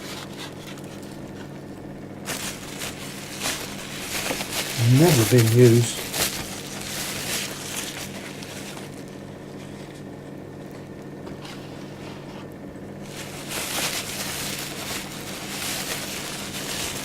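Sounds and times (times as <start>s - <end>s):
steady low hum: 0.0s - 17.0s
packing material rustling: 2.2s - 9.8s, 13.0s - 17.0s.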